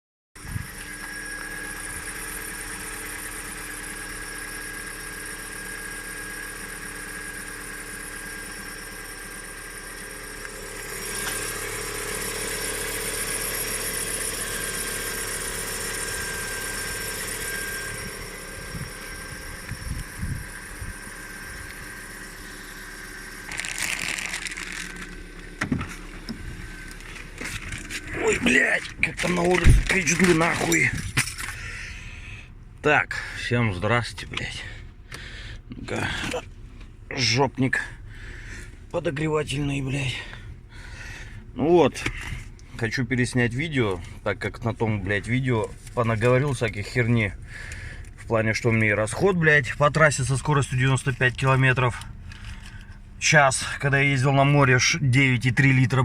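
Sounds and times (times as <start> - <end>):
high whistle from alternator: 0.4 - 30.7
car engine running: 0.4 - 56.0.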